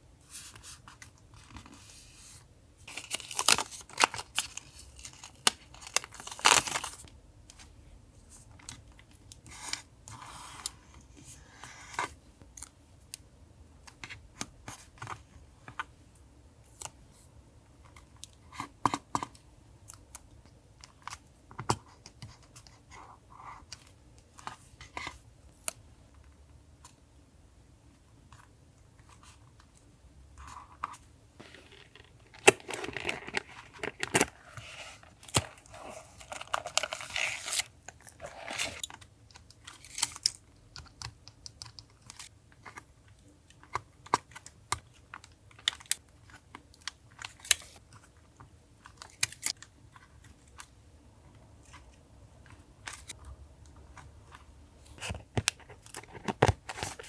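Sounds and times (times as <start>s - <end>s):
paper crinkling and rustling: 2.9s - 7.1s, 31.4s - 39.0s, 54.8s - 57.0s.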